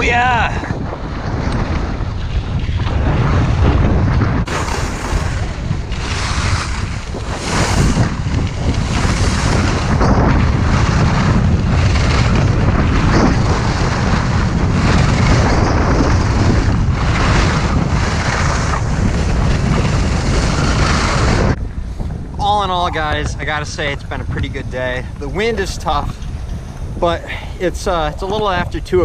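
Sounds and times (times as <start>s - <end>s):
wind buffeting microphone: 0.0s - 29.0s
skis carving snow: 1.2s - 21.6s, 22.4s - 26.3s.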